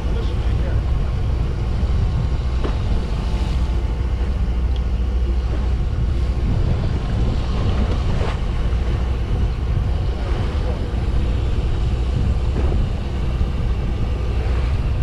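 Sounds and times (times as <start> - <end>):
boat engine rumble: 0.0 - 15.0
wind on microphone: 0.0 - 15.0.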